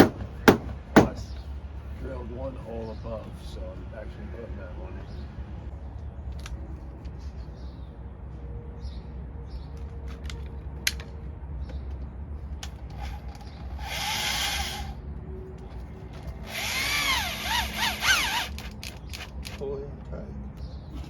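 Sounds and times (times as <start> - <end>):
power drill driving a screw: 12.9 - 15.0, 16.4 - 19.6.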